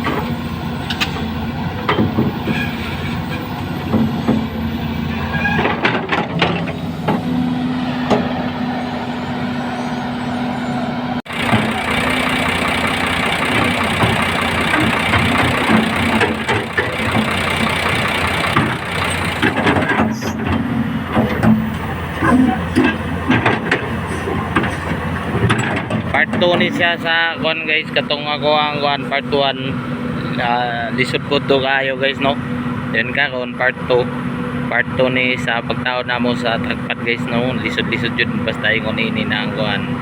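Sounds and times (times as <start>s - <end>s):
diesel engine idling: 0.0s - 40.0s
metallic knocks and clanks: 5.3s - 7.2s, 11.3s - 26.8s.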